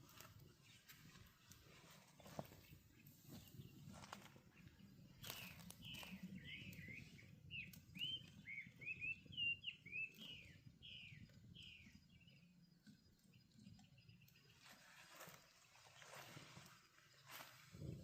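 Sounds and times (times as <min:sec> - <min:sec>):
bird chirping: 0:02.2 - 0:17.9.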